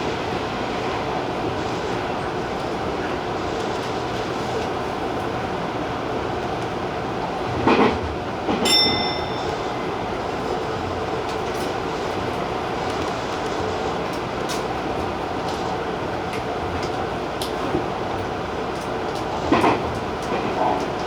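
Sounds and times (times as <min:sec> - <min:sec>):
short high ringing tone: 0:08.7 - 0:10.1.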